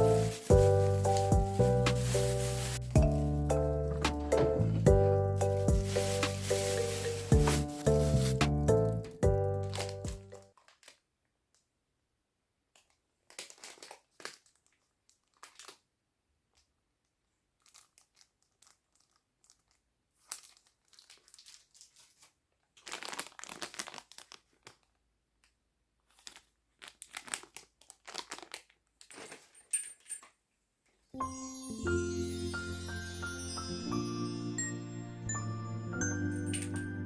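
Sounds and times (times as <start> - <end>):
faint crinkling and rustling: 0.0 - 11.6, 12.7 - 15.9, 16.5 - 31.1.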